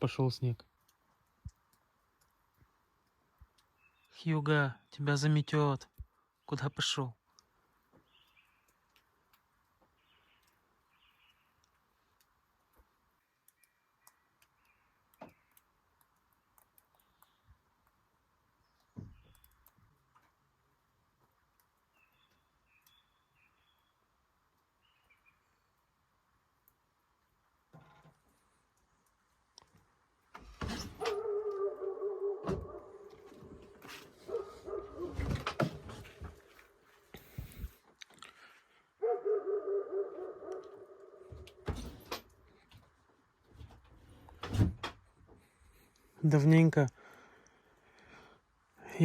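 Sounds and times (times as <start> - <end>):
faint high bird chirps: 3.6 - 5.0, 8.0 - 8.8, 9.9 - 11.7, 16.8 - 17.6, 21.8 - 24.1, 24.8 - 25.7.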